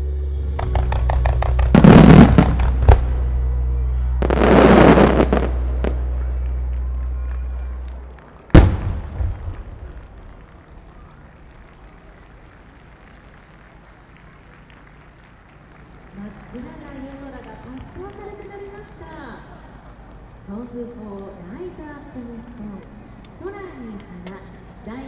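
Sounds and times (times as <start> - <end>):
music: 0.0 - 8.0
fireworks crackling: 0.5 - 3.4, 4.2 - 21.5
fireworks boom with echoes: 0.5 - 12.8.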